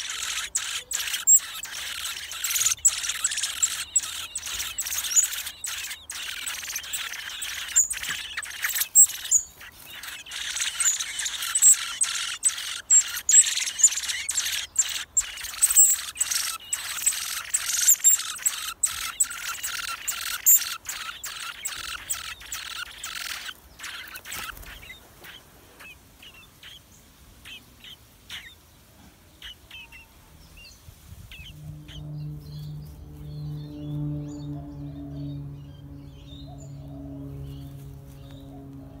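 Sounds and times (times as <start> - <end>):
nestlings calling shrilly: 0.0 - 28.6, 29.3 - 39.0
soft music with low tones: 32.0 - 38.9.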